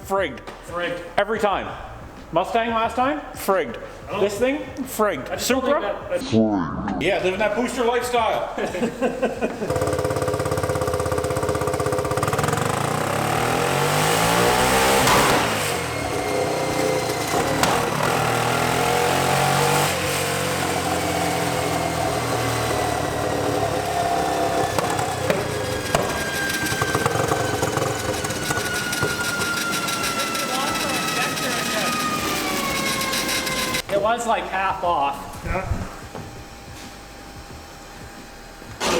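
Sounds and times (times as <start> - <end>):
engine revving at full throttle: 9.7 - 33.8.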